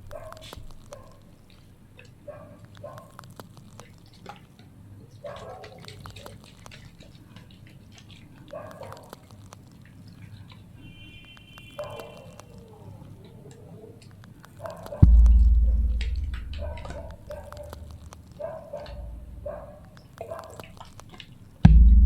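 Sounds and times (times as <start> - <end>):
water drips and wet clicks: 0.0 - 21.8
low hum: 15.0 - 17.3, 21.7 - 22.0
bubbling splashes: 15.0 - 21.6.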